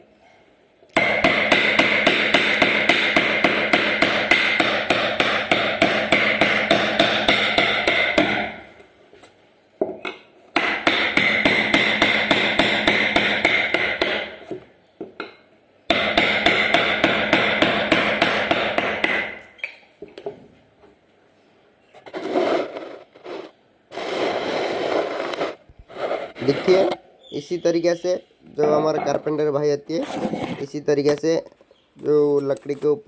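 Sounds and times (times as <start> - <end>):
carving tool tapping into wood: 1.0 - 8.6, 9.8 - 19.4.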